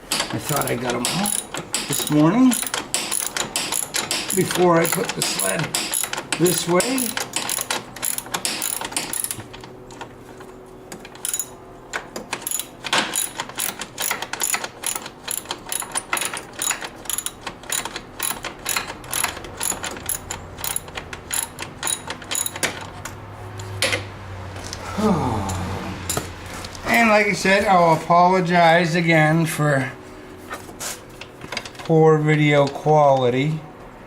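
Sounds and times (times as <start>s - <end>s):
ratchet wrench clicking: 0.1s - 9.5s, 11.2s - 11.5s, 12.4s - 22.9s.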